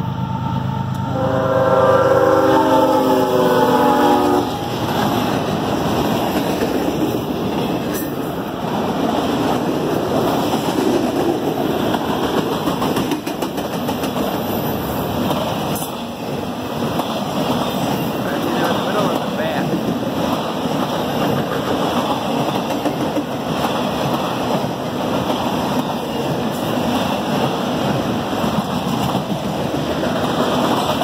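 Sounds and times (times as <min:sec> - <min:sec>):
locomotive air horn: 0:00.2 - 0:04.6.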